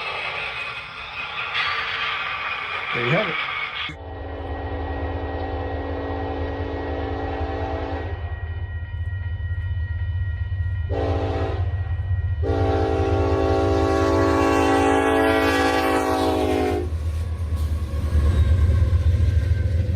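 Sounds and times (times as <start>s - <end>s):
model locomotive horn blasts: 4.0s - 8.3s, 10.9s - 11.8s, 12.4s - 17.0s.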